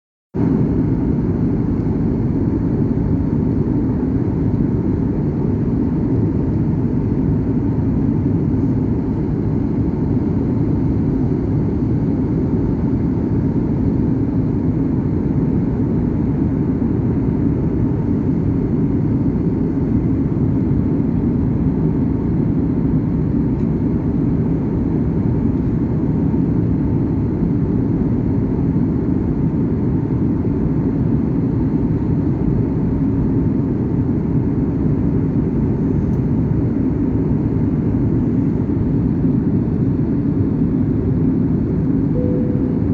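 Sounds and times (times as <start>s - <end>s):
jet airliner cabin noise: 0.4s - 42.9s
faint steady hum: 31.8s - 42.9s.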